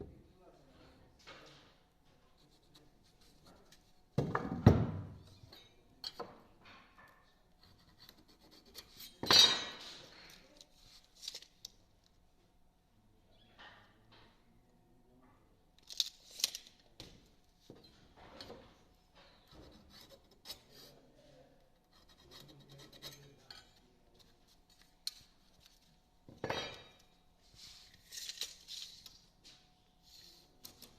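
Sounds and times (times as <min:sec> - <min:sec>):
knocks and scrapes on wood: 0:17.0 - 0:20.8.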